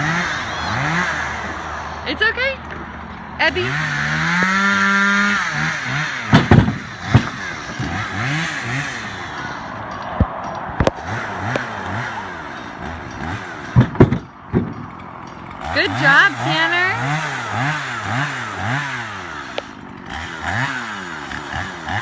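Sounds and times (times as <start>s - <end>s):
motor revving: 0.0s - 2.3s, 3.4s - 9.9s, 10.8s - 14.0s, 15.6s - 22.0s
logs clattering: 4.3s - 16.6s.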